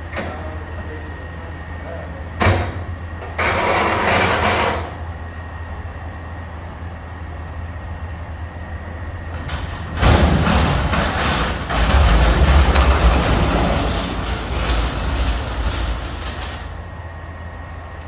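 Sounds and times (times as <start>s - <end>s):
garbage truck diesel engine revving: 9.3s - 17.0s.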